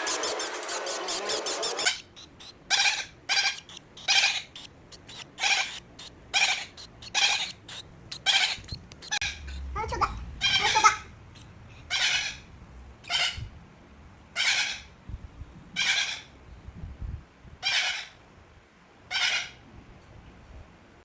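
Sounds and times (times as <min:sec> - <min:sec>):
cockatiel squawking: 0:00.0 - 0:13.4, 0:19.1 - 0:19.6.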